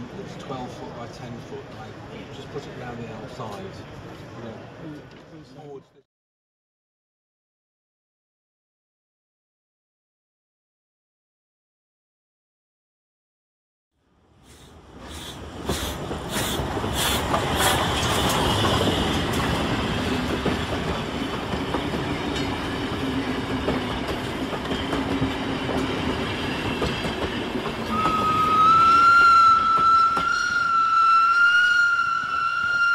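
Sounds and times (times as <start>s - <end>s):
train rumbling over rails: 0.0s - 5.2s, 14.2s - 32.9s.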